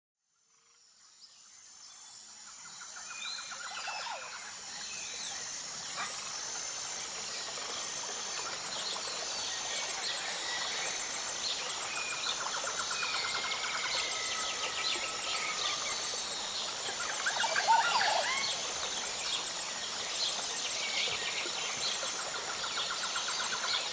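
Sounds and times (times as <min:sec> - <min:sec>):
insects chirring: 0:00.5 - 0:23.9
birds chirping and trilling: 0:08.4 - 0:23.9.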